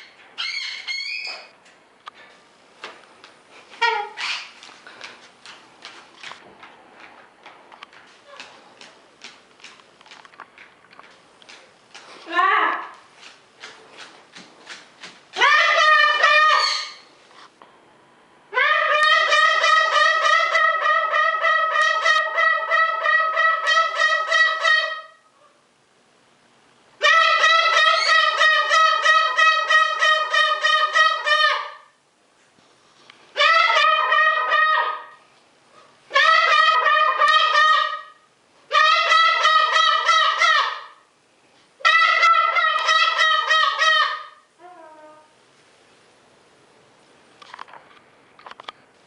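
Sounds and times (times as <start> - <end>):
cockatoo pulsed horn-like call: 18.6 - 25.3, 27.0 - 31.9, 33.4 - 35.2, 36.1 - 41.0, 41.8 - 45.3.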